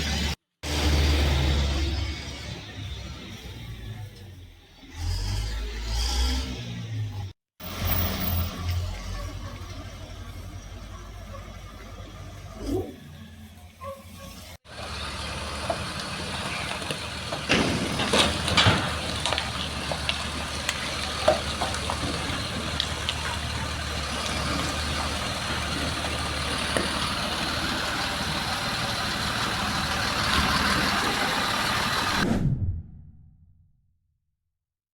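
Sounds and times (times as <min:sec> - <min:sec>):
flooded street noise: 0:00.0 - 0:04.2, 0:07.6 - 0:32.2
vehicle engine running: 0:14.7 - 0:32.2.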